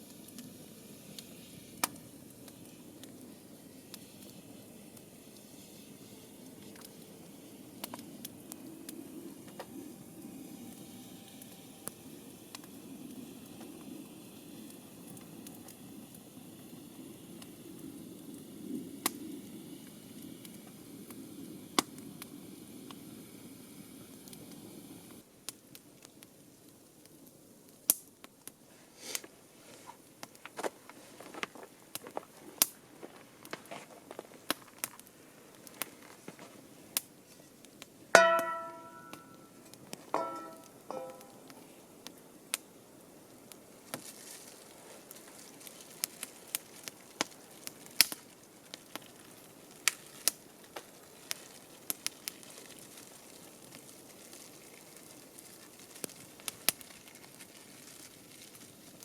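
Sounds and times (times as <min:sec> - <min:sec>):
food sizzling: 0:00.0 - 0:25.2, 0:38.2 - 0:41.8, 0:43.3 - 0:59.0
campfire crackling: 0:00.0 - 0:59.0.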